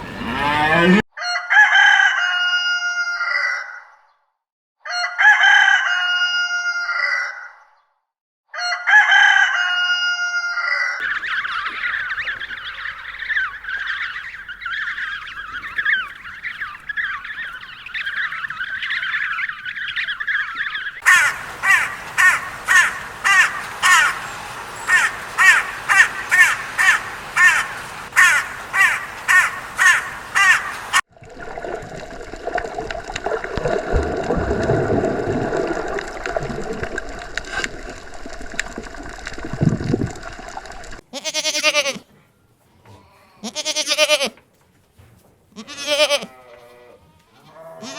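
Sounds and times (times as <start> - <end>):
loud harsh animal calls: 0.0 - 1.0, 11.0 - 24.2
animal chirping: 11.0 - 21.1
bleat-like animal call: 41.1 - 42.1, 42.9 - 44.4, 45.6 - 47.9.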